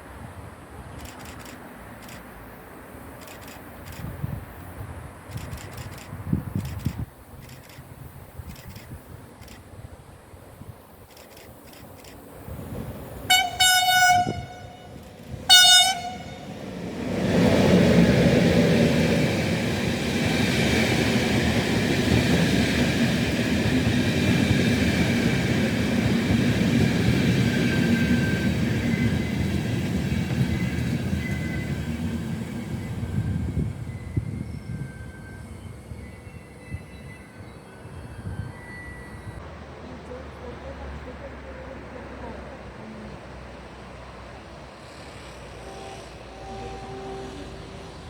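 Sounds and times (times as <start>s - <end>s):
train wheels rumbling on rails: 10.7s - 39.6s, 43.9s - 48.0s
train horn blasts: 13.3s - 16.6s, 45.2s - 48.0s.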